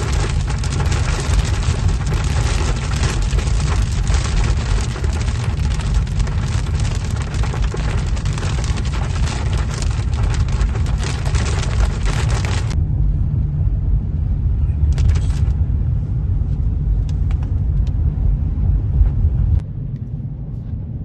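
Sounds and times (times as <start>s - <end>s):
heavy rain pelting vehicle: 0.0s - 12.8s, 14.8s - 15.6s
road and wind rumble: 0.0s - 21.0s.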